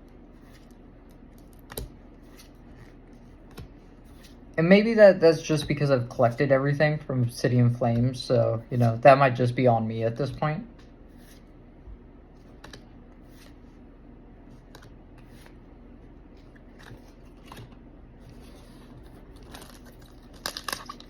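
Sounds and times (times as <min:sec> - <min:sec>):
trading cards rustling: 0:14.5 - 0:21.0
foil wrapper crinkling: 0:18.4 - 0:21.0.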